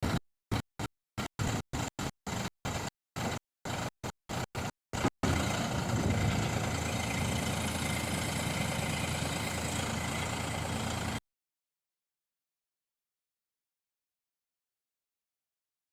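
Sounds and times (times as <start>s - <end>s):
heavy diesel engine running: 1.4s - 11.2s.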